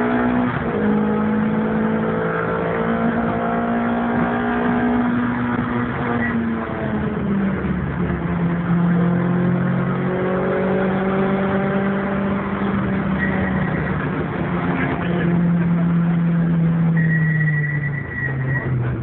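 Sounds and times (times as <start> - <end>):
car engine cruising: 0.0 - 19.0
road noise: 0.0 - 19.0.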